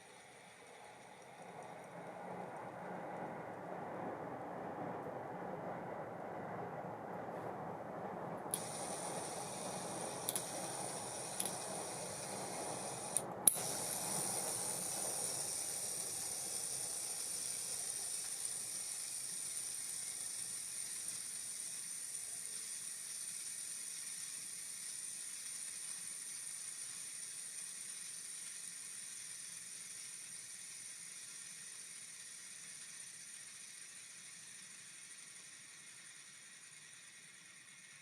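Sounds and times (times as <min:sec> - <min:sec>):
fishing reel spool whirring: 0:00.0 - 0:02.7, 0:08.5 - 0:38.0
reel clicks: 0:08.5 - 0:36.8.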